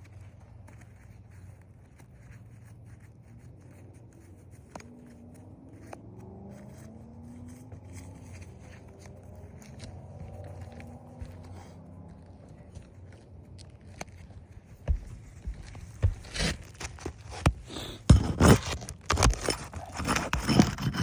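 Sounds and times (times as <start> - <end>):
scraping roof shingle: 8.0 - 21.0.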